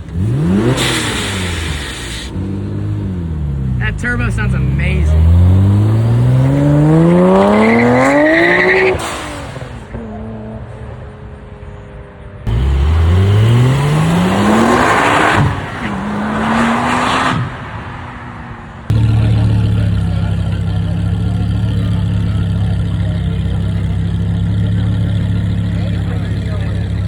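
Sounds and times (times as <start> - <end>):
deep steady engine note: 0.0 - 8.8, 18.9 - 27.0
car engine revving: 0.0 - 11.4, 12.4 - 27.0.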